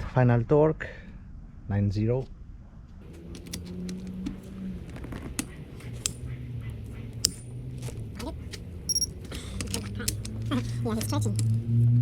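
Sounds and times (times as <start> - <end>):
metallic wrench clicks: 5.4 - 6.2, 7.2 - 7.5, 8.9 - 10.4
short high beep: 8.9 - 9.1.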